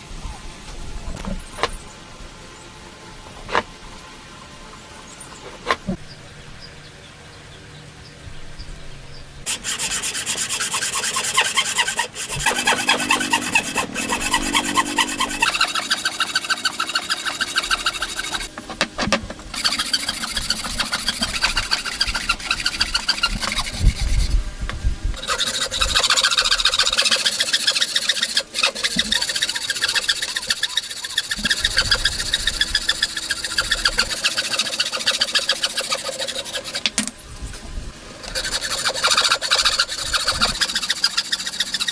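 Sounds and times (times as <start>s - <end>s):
hand tool rasping wood: 9.5s - 24.4s, 25.2s - 36.9s, 38.2s - 41.9s.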